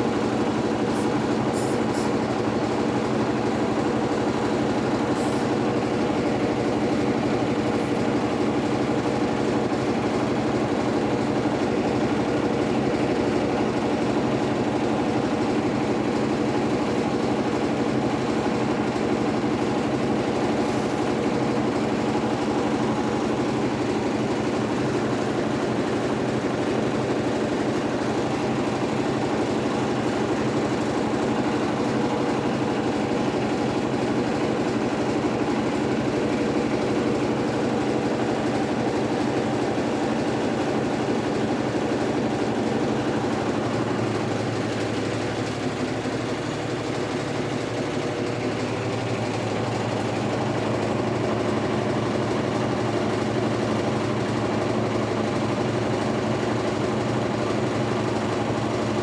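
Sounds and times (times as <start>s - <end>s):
washing machine motor hum: 0.0s - 59.0s.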